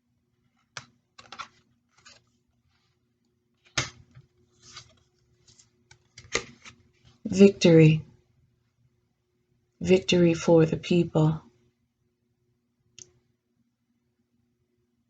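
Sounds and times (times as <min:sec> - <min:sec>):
cards snapping and rustling: 0:00.6 - 0:02.4, 0:03.6 - 0:06.9.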